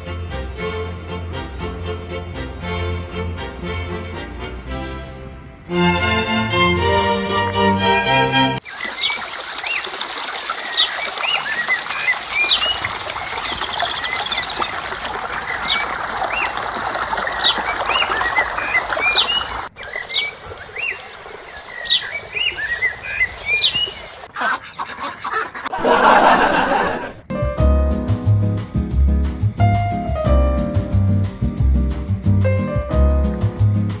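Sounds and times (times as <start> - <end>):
small birds chirping: 8.6 - 25.4.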